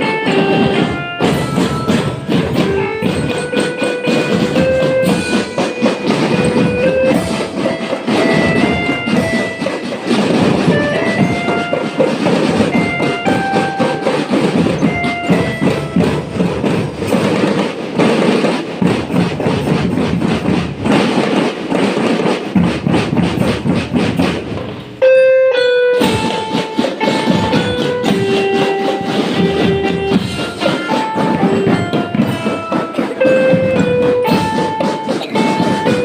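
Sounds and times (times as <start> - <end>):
short melodic notes: 0.0 - 17.0, 25.0 - 36.0
marching band drums: 0.0 - 25.1, 25.9 - 36.0.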